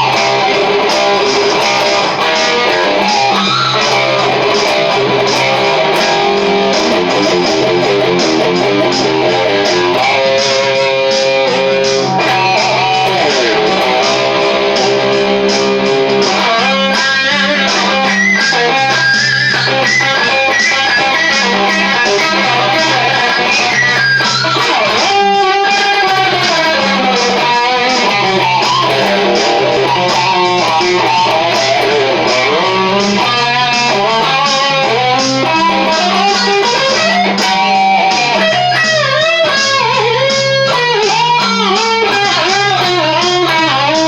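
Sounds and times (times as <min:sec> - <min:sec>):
bass and drum backing: 0:00.0 - 0:44.0
electric guitar solo: 0:00.0 - 0:44.0.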